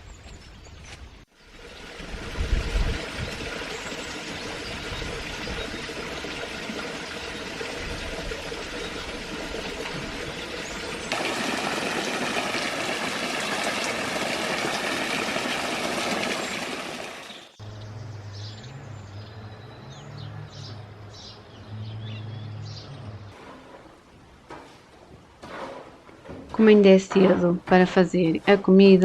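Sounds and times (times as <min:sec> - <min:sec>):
birds chirping: 0:02.6 - 0:12.2, 0:15.6 - 0:23.4.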